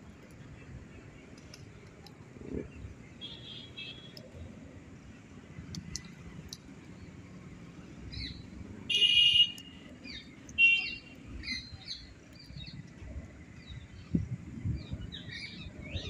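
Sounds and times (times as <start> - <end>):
birds chirping and calling: 8.1 - 8.6, 9.5 - 16.0.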